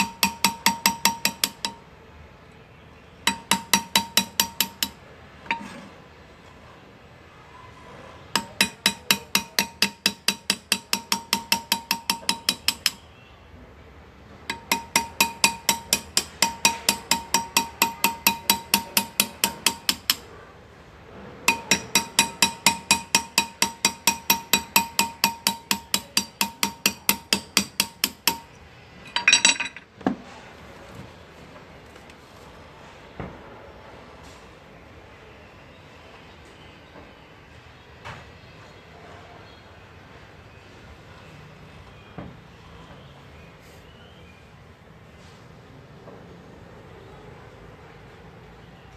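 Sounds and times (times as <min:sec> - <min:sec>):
hammer tapping chisel into metal: 0:00.0 - 0:01.9, 0:03.2 - 0:05.8, 0:08.4 - 0:13.1, 0:14.5 - 0:20.3, 0:21.5 - 0:29.9.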